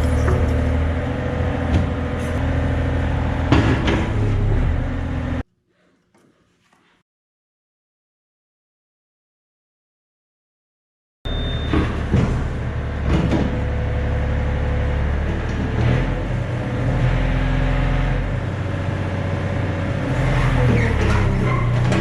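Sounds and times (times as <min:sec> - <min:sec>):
excavator diesel engine running: 0:00.0 - 0:05.4, 0:11.3 - 0:22.0.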